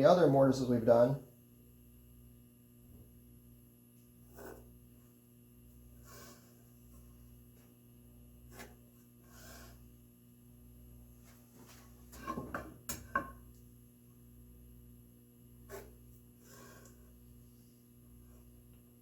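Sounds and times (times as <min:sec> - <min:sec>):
wooden knocks and scraping: 0:11.6 - 0:13.3.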